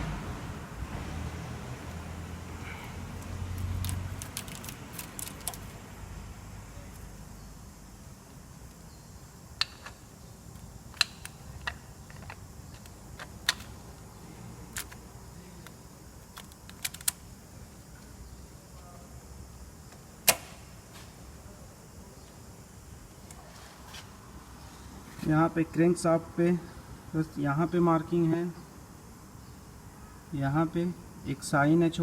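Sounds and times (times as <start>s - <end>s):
metallic clicks and clinks: 3.8s - 5.7s.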